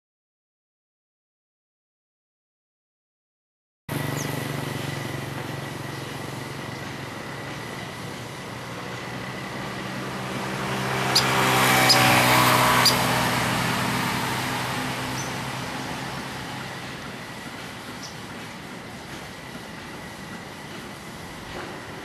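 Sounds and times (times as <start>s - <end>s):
vehicle driving past: 3.9s - 18.3s.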